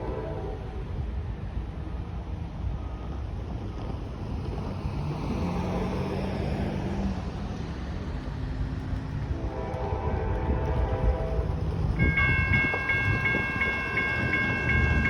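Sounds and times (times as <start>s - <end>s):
wind buffeting microphone: 0.0s - 15.0s
diesel locomotive rumble: 7.0s - 15.0s.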